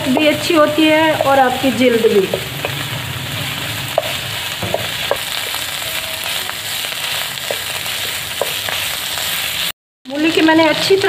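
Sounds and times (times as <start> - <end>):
spatula tapping pan: 0.0 - 2.8, 3.9 - 5.6, 7.4 - 8.8
radish sizzling in oil: 0.0 - 11.0
spatula scraping pan: 1.0 - 9.7.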